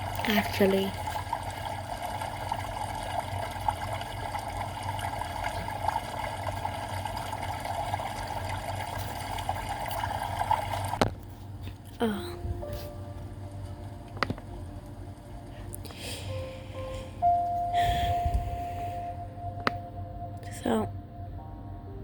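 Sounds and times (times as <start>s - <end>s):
water trickling and splashing: 0.0s - 11.9s, 12.6s - 17.2s
low steady hum: 0.0s - 22.0s.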